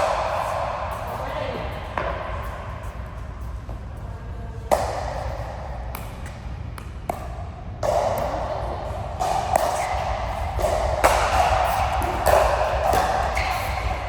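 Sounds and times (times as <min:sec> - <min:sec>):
ball being struck: 0:09.2 - 0:14.0.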